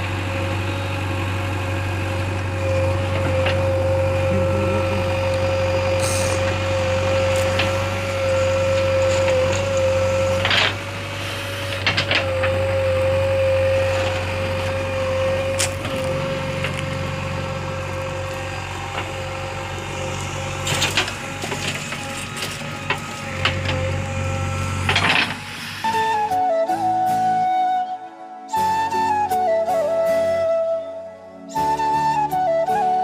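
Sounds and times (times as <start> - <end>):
constant whine: 0.0 - 26.4
diesel engine running: 0.0 - 27.6.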